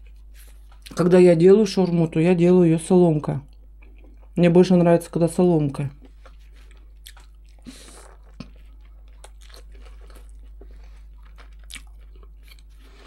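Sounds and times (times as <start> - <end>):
chewing with wet mouth clicks: 6.0 - 12.8
bread crunching on bite: 6.0 - 13.0.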